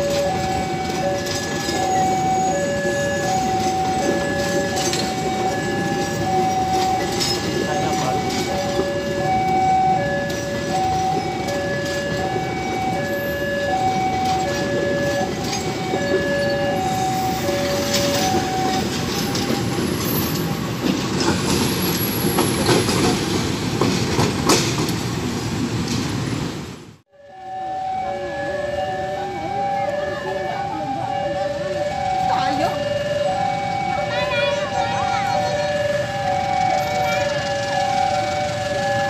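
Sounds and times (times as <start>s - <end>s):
level crossing alarm two-tone signal: 0.0s - 19.6s, 27.2s - 39.0s
steel wheels clattering over rail joints: 0.0s - 26.6s
train rolling over crossing: 0.0s - 39.0s
high wheel squeal: 0.6s - 8.8s.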